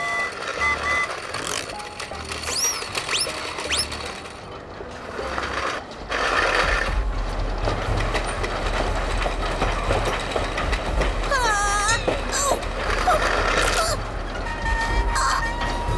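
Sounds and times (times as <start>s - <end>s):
cartoon train clatter and clicks: 0.0s - 15.9s.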